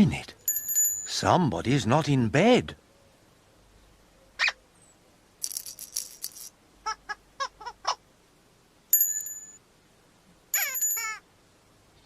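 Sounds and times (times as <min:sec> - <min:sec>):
shaken rattle: 0:05.4 - 0:06.6.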